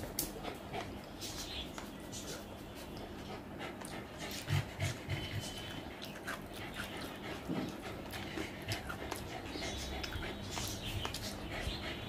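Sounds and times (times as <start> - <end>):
chewing with wet smacks: 3.7 - 11.8.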